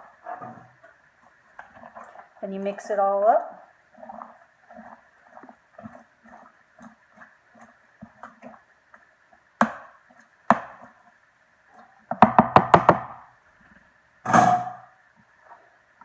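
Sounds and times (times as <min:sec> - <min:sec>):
spoon stirring in plastic container: 0:00.2 - 0:02.5, 0:03.9 - 0:11.1
sharp knocks: 0:12.1 - 0:13.2.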